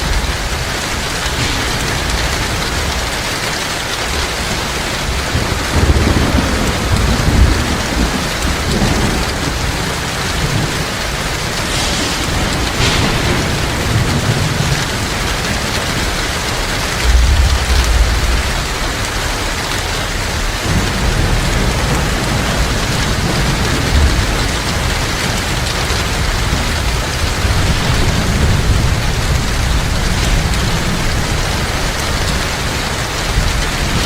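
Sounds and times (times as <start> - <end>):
heavy rain falling: 0.0 - 34.0
thunder rumble: 0.0 - 34.0.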